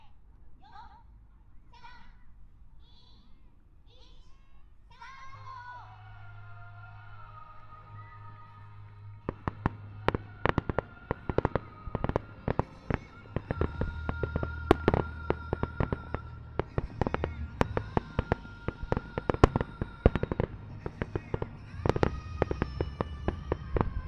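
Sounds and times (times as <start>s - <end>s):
music playing: 5.0s - 24.0s
fireworks cracking and banging: 7.0s - 24.0s.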